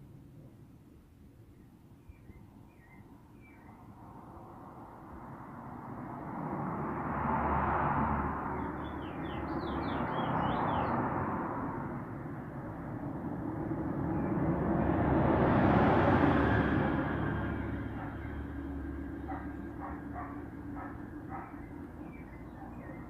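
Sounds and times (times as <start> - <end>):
bird chirping: 1.5 - 3.9, 8.6 - 11.0, 19.1 - 23.0.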